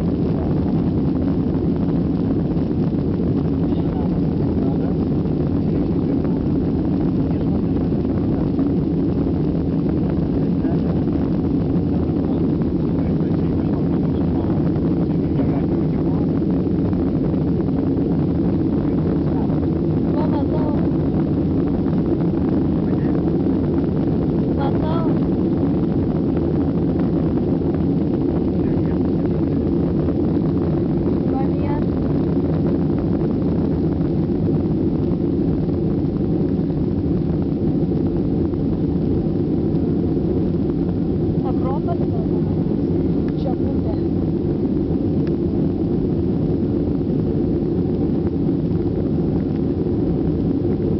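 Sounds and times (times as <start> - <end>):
jet engines roaring in cabin: 0.0 - 50.9
faint passenger voices: 3.6 - 6.5, 7.2 - 8.6, 10.3 - 11.1, 12.2 - 16.3, 22.7 - 23.2, 28.4 - 29.2.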